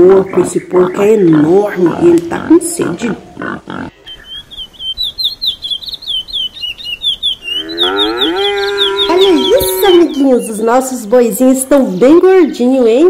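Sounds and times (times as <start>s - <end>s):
long lower bird call: 3.9s - 11.1s
small bird chirping rapidly: 4.0s - 13.0s.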